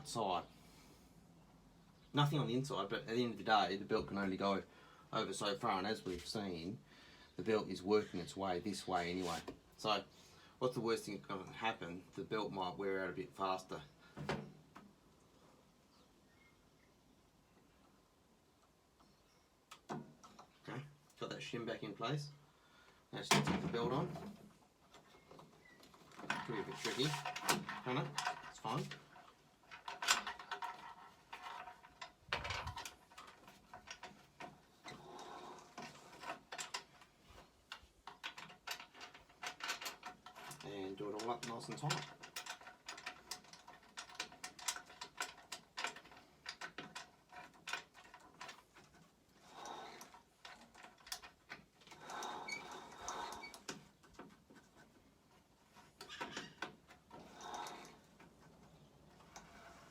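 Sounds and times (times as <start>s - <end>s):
hand tools clicking and scraping metal: 23.2s - 59.9s.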